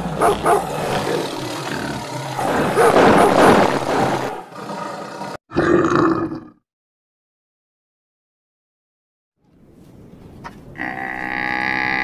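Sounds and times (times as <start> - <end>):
animal roaring: 0.0 - 6.6, 10.8 - 12.0.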